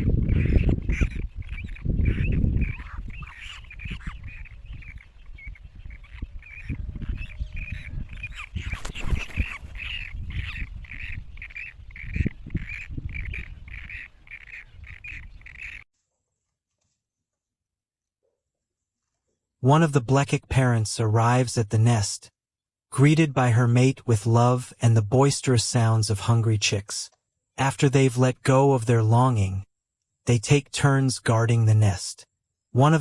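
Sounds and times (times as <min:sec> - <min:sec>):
nestling birds calling: 0:00.0 - 0:15.9.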